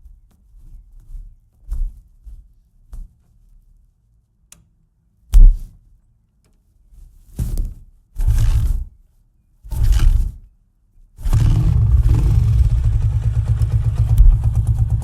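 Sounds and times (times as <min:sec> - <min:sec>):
motorcycle engine revving: 0:11.2 - 0:15.0
faint low engine idle: 0:11.3 - 0:15.0.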